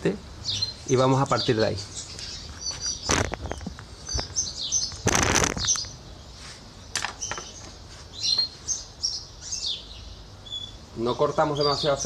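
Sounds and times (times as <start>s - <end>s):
small birds chirping: 0.0s - 12.0s
loud rustle: 4.9s - 6.6s.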